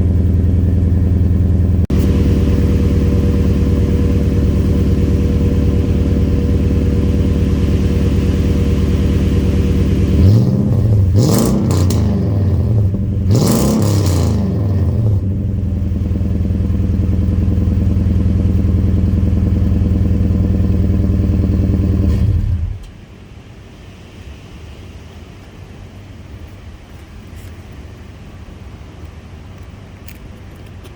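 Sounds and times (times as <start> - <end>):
truck engine idling and revving: 0.0 - 23.0.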